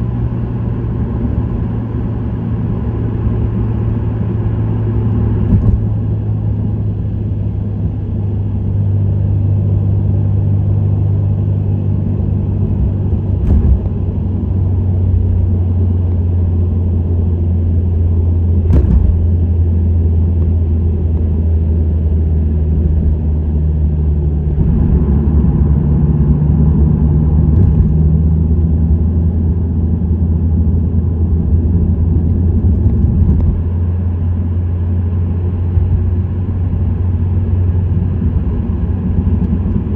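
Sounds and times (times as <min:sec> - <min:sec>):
low exhaust drone: 0:00.0 - 0:39.9
road noise: 0:00.0 - 0:39.9
short sharp knocks: 0:18.7 - 0:19.4.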